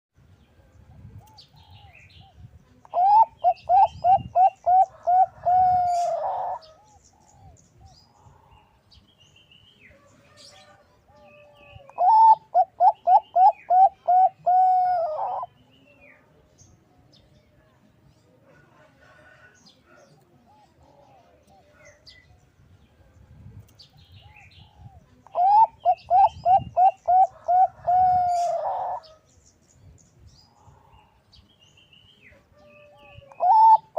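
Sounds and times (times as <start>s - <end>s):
dove cooing: 2.9s - 7.6s, 11.2s - 15.5s, 24.2s - 29.2s, 32.6s - 33.9s.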